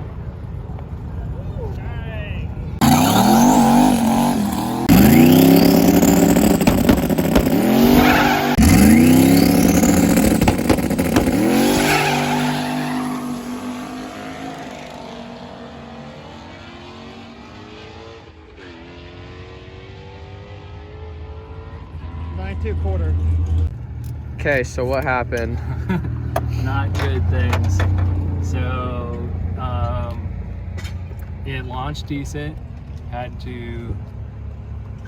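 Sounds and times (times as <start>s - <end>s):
car engine accelerating hard: 2.7s - 24.2s.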